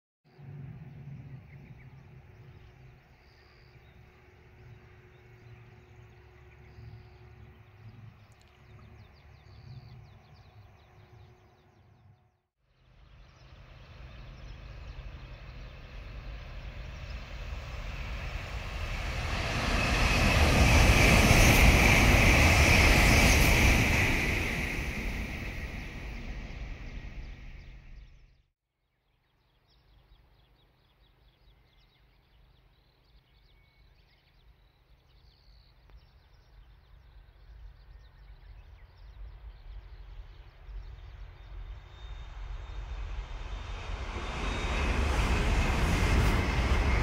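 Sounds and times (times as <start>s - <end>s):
high-speed train passing: 13.0s - 28.1s, 38.8s - 47.0s.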